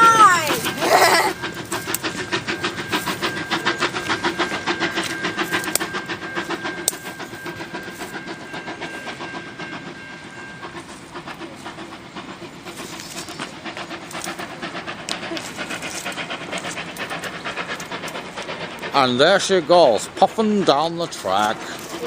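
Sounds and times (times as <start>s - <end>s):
steady high tone: 0.0s - 13.1s
steam train moving away: 0.0s - 22.0s.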